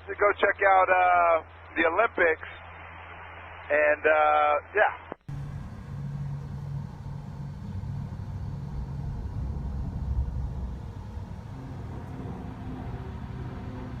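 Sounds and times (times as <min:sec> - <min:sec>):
faint higher hum: 0:00.0 - 0:14.0
plane engine drone overhead: 0:05.2 - 0:14.0.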